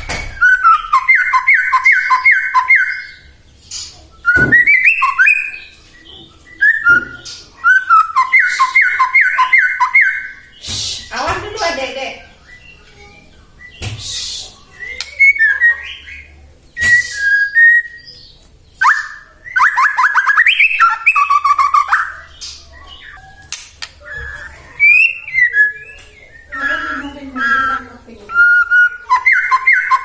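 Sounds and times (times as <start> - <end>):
bird singing whistled notes: 0.0 - 11.1, 12.4 - 30.0
sharp bird clicks: 13.7 - 15.5.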